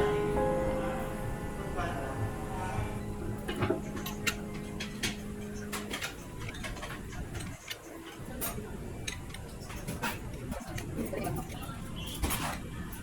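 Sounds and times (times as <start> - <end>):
low steady hum: 0.0 - 7.6.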